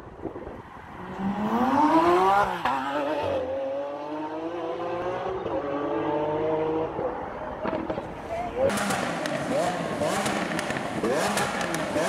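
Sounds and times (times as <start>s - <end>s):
car engine accelerating hard: 8.7s - 12.0s.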